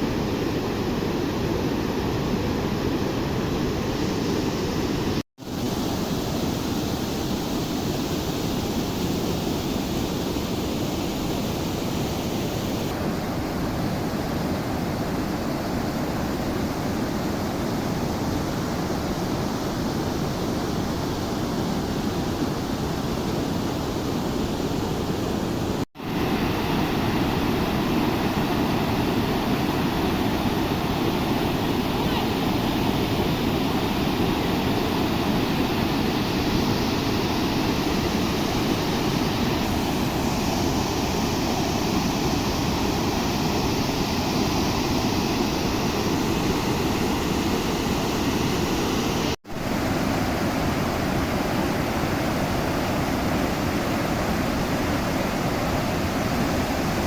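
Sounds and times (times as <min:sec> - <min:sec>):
floodwater rushing in river: 0:00.0 - 0:57.0.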